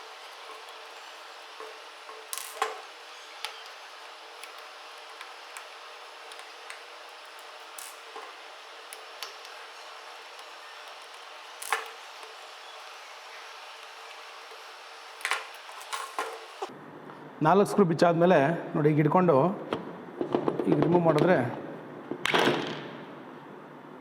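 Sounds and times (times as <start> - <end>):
screwdriver and metal parts clicking: 0.0 - 16.7.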